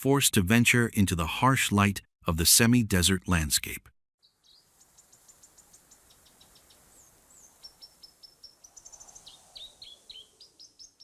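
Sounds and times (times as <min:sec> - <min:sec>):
quiet outdoor ambience: 0:00.5 - 0:11.0.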